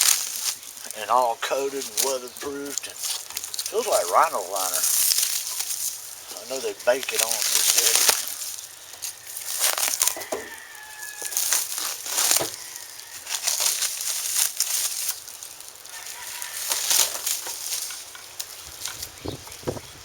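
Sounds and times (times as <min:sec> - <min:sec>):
packaging wrap crinkling: 0:00.0 - 0:19.2.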